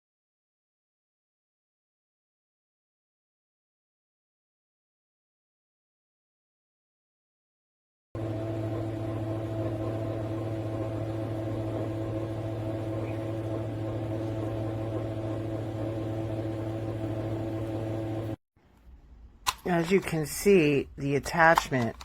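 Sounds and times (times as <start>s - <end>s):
hair dryer running: 8.2s - 18.4s.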